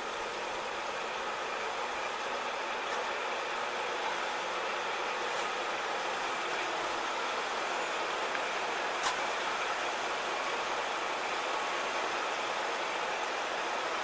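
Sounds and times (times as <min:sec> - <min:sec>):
train running: 0:00.0 - 0:14.0.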